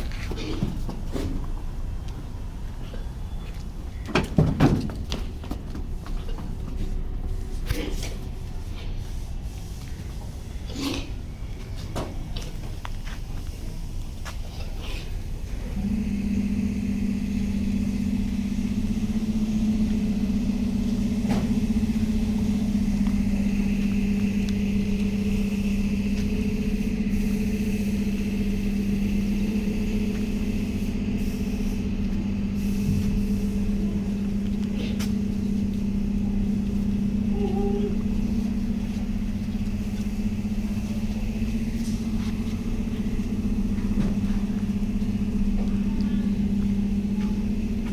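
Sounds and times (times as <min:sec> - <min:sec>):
steady motor hum: 0:00.0 - 0:47.9
low rumble: 0:15.3 - 0:47.9.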